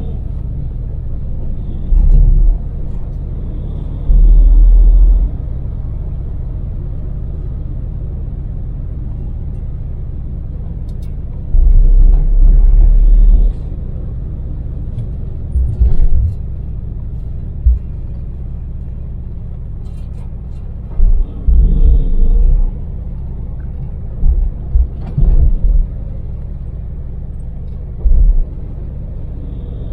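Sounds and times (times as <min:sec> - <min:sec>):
van engine and road rumble: 0:00.0 - 0:29.9
short low thumps: 0:01.6 - 0:05.6, 0:11.5 - 0:13.7, 0:15.0 - 0:16.6, 0:17.6 - 0:18.4, 0:20.9 - 0:26.2, 0:28.0 - 0:28.8.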